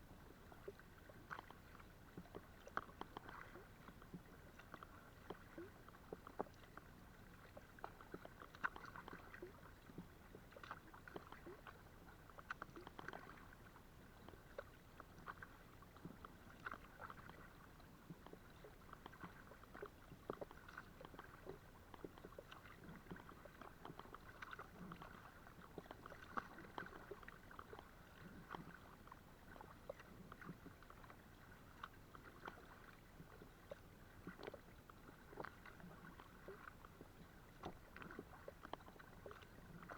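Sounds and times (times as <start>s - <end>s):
paddle splashing water: 0.0s - 39.9s.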